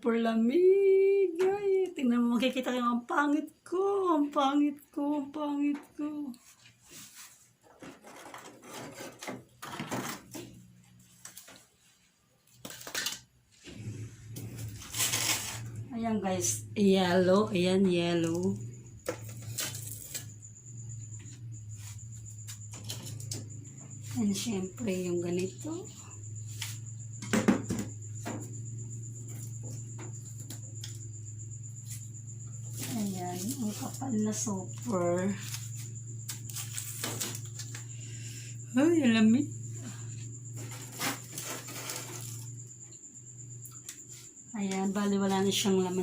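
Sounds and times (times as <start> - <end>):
faint hum: 0.0 - 7.3, 8.1 - 46.0
frozen food packs clattering: 40.6 - 42.5.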